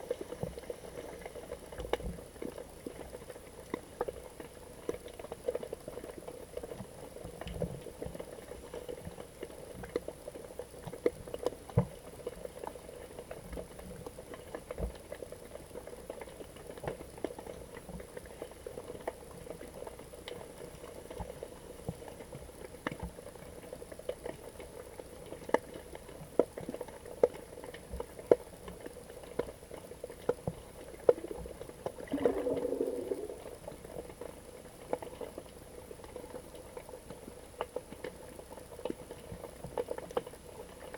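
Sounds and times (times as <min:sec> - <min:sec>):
muffled underwater wash: 0:00.0 - 0:40.9
low pitched burble: 0:32.1 - 0:33.8.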